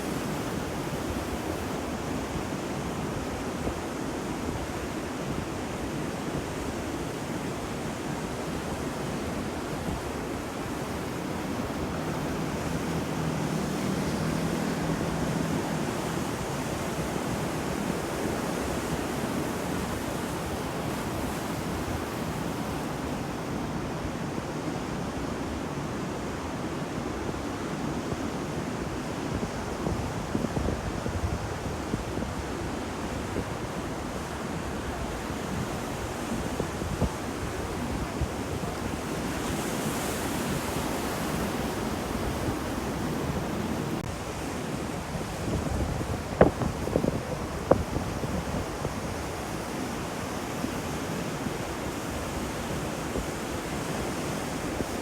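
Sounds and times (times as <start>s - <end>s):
ocean waves breaking: 6.9s - 25.3s, 32.4s - 55.0s.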